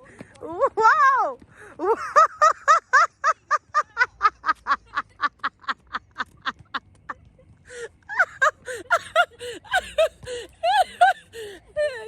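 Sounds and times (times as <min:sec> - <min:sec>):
person laughing hard: 0:08.1 - 0:12.0.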